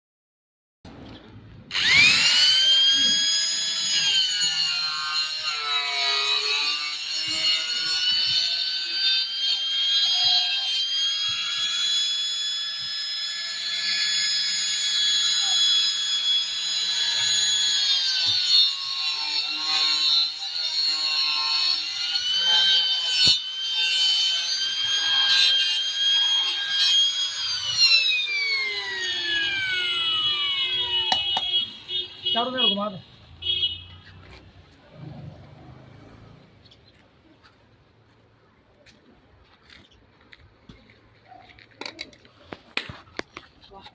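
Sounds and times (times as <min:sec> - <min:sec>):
electric power tool whining: 0:01.7 - 0:32.3.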